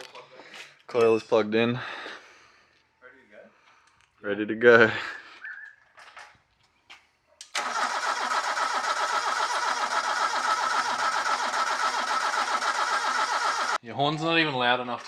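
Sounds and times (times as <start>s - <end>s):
engine starter cranking: 7.5s - 13.8s.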